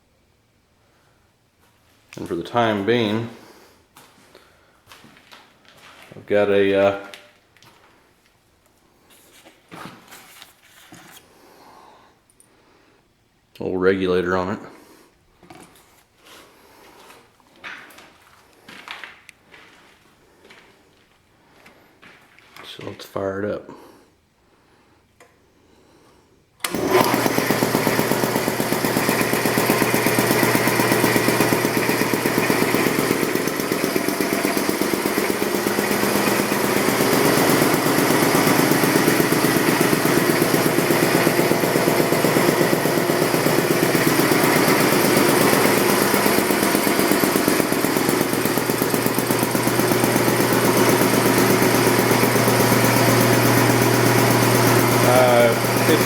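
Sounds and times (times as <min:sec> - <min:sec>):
air compressor pumping: 0:26.6 - 0:56.0.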